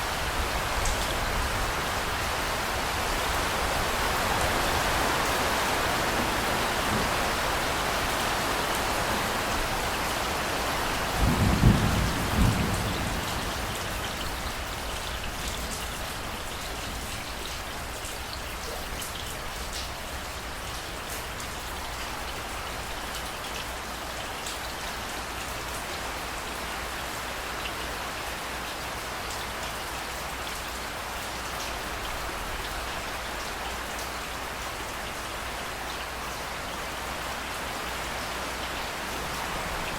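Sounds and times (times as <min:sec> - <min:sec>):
heavy rain falling: 0:00.0 - 0:39.9
low thunder clap rumbling: 0:11.2 - 0:13.9.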